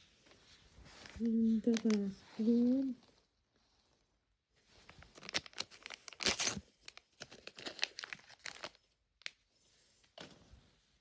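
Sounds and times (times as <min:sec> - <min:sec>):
plastic wrapping crinkling: 0:00.9 - 0:03.0, 0:04.8 - 0:09.4.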